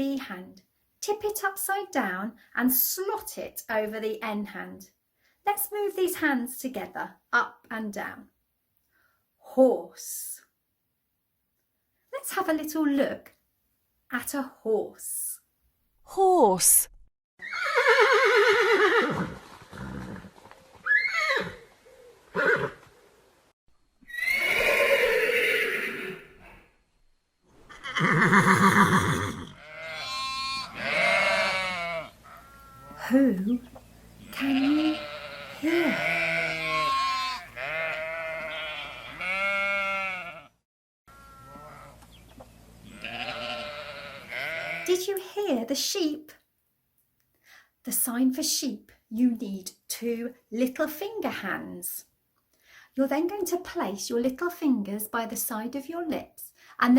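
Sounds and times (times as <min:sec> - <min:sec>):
horse whinnying: 0:17.4 - 0:22.9, 0:24.0 - 0:26.7, 0:27.6 - 0:33.1, 0:34.3 - 0:40.5
sheep bleating: 0:27.8 - 0:33.2, 0:34.2 - 0:42.0, 0:42.8 - 0:44.9.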